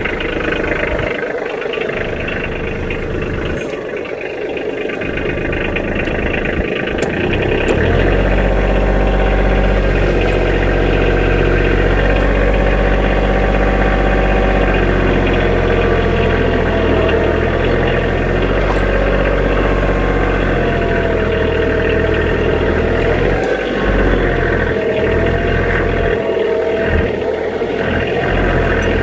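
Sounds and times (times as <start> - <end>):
diesel tractor engine running: 0.0 - 29.0.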